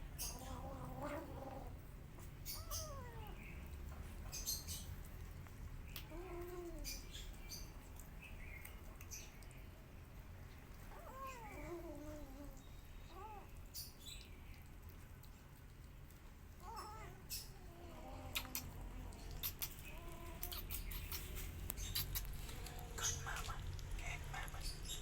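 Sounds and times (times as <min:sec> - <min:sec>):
kittens meowing: 0:00.2 - 0:01.8, 0:02.4 - 0:03.6, 0:05.9 - 0:07.3, 0:10.9 - 0:13.9, 0:16.6 - 0:22.3
small clicks and ticks: 0:10.5 - 0:24.6.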